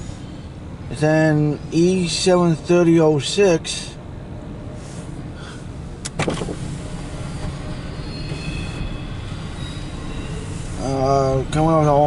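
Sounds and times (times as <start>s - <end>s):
freight train rumbling past: 0.0s - 12.0s
high wheel squeal: 6.6s - 11.5s.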